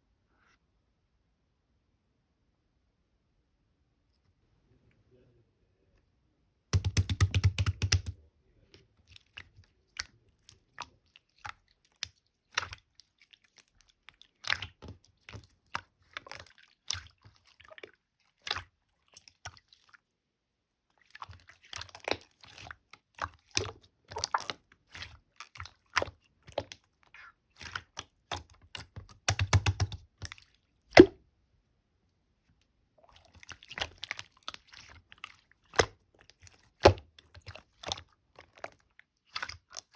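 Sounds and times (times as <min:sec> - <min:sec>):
slime squished by hand: 0:21.0 - 0:31.2, 0:33.0 - 0:39.9.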